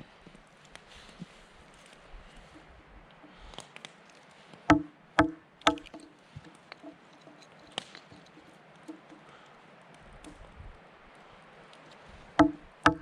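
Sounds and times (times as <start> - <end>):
wood splitting knocks: 4.7 - 6.1, 12.4 - 13.0
wood clicks and taps: 4.7 - 9.3, 12.4 - 13.0.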